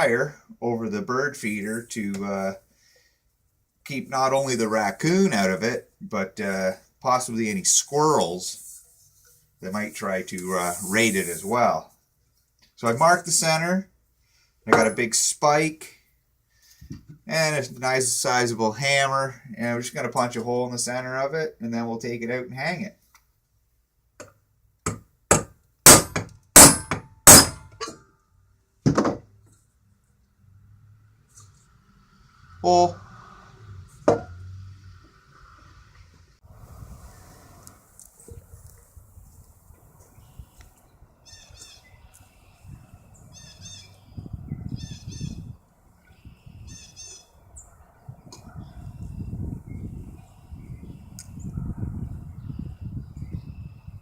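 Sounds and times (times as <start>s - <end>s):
hammer striking metal spike: 24.9s - 28.0s
bird calling harsh notes: 41.2s - 42.0s, 43.2s - 45.5s.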